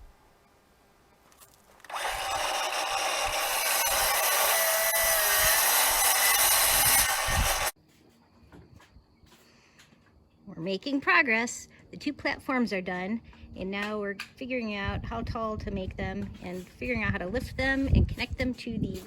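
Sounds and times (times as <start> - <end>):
power tool cutting wood: 1.8 - 7.8.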